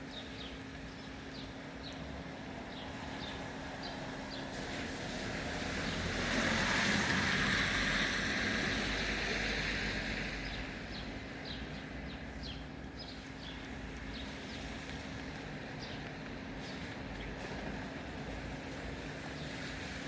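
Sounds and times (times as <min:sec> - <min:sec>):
vehicle tyres hissing on wet road: 0:02.9 - 0:12.6, 0:13.7 - 0:20.0.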